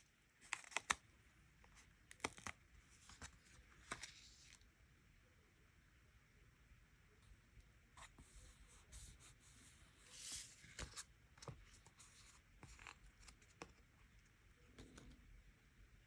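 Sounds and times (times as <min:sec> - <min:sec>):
soft paper rustle: 0:01.6 - 0:04.7, 0:08.0 - 0:15.2.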